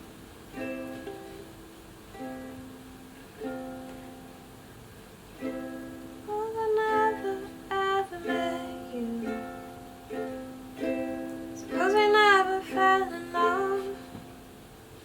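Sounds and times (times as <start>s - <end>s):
ukulele strumming chords: 0.0s - 15.0s
person humming: 6.3s - 9.7s, 11.5s - 14.2s.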